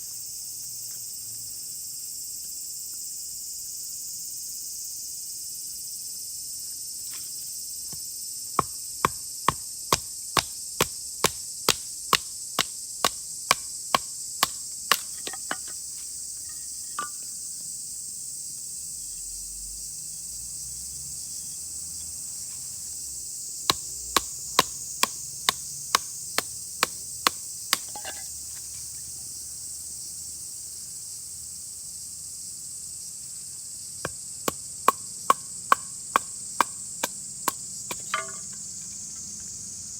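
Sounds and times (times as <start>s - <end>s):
high drone of insects: 0.0s - 39.9s
sharp chopping strikes: 8.6s - 15.8s, 23.7s - 28.0s, 34.4s - 38.5s.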